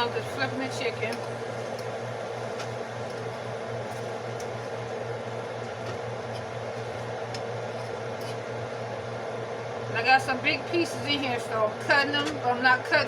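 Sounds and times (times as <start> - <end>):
appliance low hum: 0.0 - 13.0
utensil clicking in pan: 1.1 - 4.6.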